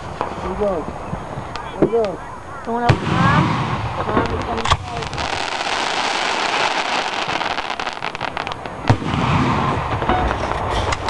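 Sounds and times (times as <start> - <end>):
fireworks crackling: 0.0 - 11.0
fireworks boom: 2.8 - 11.0.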